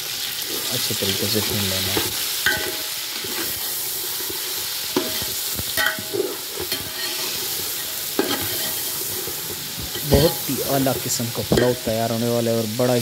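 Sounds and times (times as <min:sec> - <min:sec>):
food sizzling in oil: 0:00.0 - 0:13.0
metal spoon knocking pot: 0:05.8 - 0:06.1.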